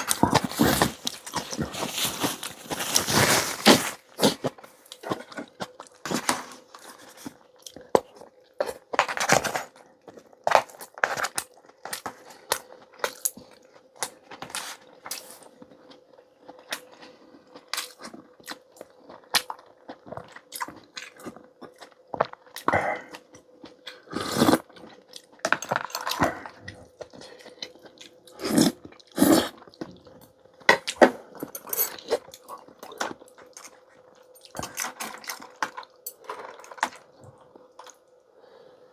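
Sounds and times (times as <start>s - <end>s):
person chewing and biting: 0.0s - 6.1s
food crunching: 0.0s - 38.2s.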